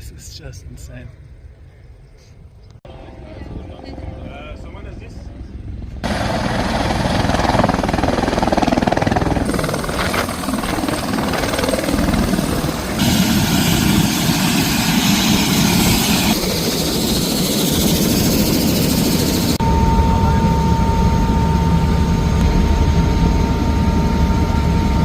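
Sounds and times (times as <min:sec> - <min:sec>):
helicopter engine and rotor noise: 0:02.9 - 0:25.0.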